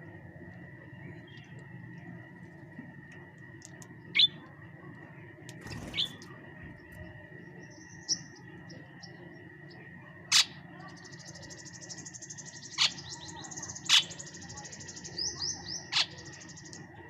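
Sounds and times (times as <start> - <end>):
steady high-pitched hum: 0.0 - 17.0
small bird chirping: 0.9 - 1.9, 4.0 - 4.5, 5.6 - 17.0.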